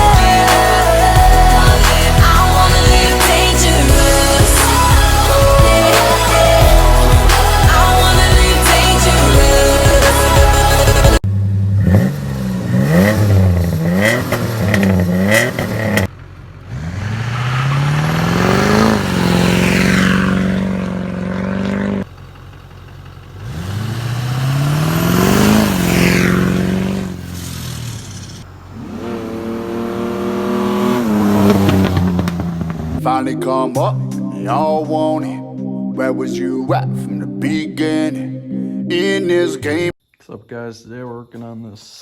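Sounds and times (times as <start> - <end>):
engine revving: 0.0 - 22.2, 22.8 - 33.1.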